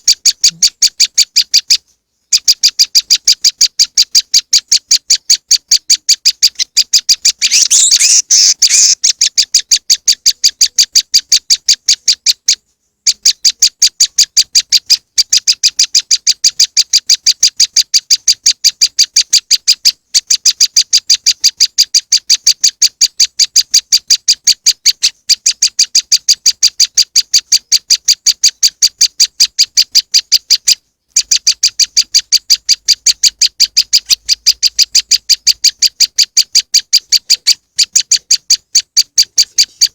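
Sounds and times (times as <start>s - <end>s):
bird trill: 0.0s - 39.9s
bird sharp high chip notes: 7.4s - 9.0s.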